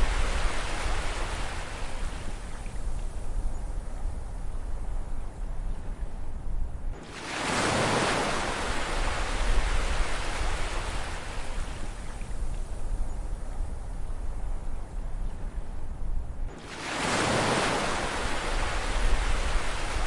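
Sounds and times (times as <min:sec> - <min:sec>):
wave breaking and washing in: 0:00.0 - 0:02.6, 0:07.0 - 0:12.2, 0:16.5 - 0:20.0.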